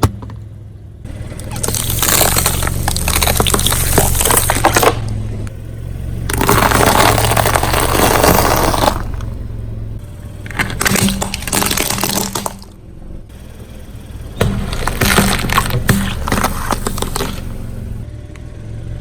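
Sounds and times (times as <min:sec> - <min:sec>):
car engine hum: 0:00.0 - 0:19.0
tyre crushing objects: 0:01.1 - 0:05.5, 0:06.2 - 0:09.3, 0:10.4 - 0:12.7, 0:14.3 - 0:18.0.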